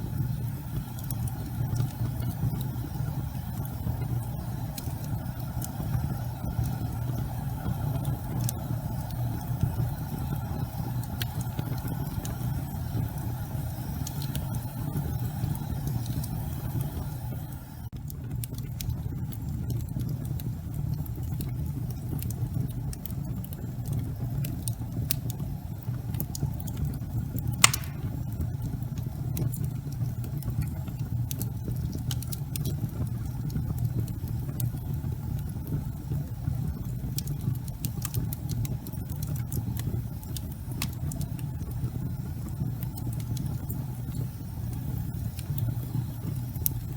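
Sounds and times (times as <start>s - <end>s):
fire crackling: 0.0s - 46.9s
fire flames rumbling: 0.0s - 46.9s
sharp pop of fire: 27.6s - 28.3s.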